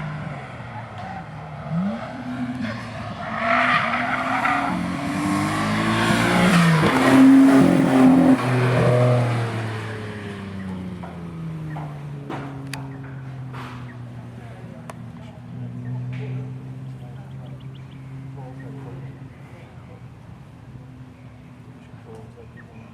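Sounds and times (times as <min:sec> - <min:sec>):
car engine revving: 0:00.0 - 0:17.2.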